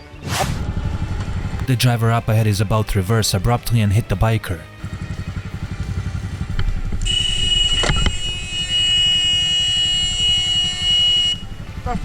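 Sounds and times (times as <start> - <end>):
motorcycle engine idling: 4.6 - 12.0
car horn held down: 7.0 - 11.0.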